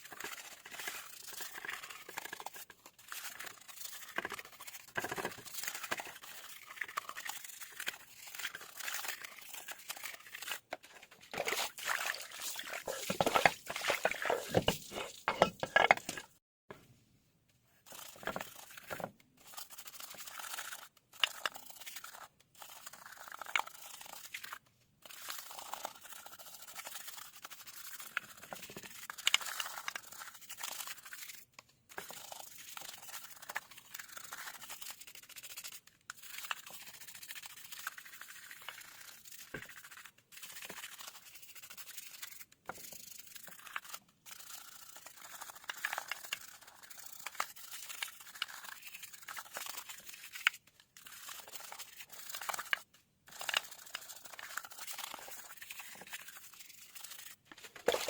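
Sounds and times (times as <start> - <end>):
scratching and scraping: 8.1 - 16.4, 57.2 - 58.0.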